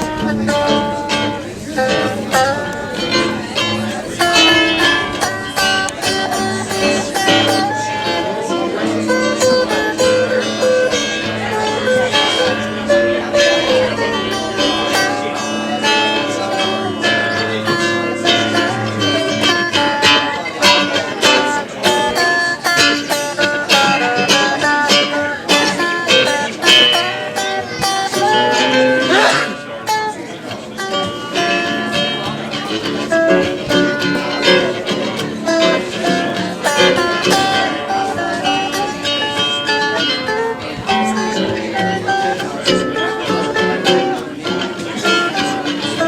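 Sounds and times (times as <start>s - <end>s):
acoustic guitar playing: 0.0s - 46.0s.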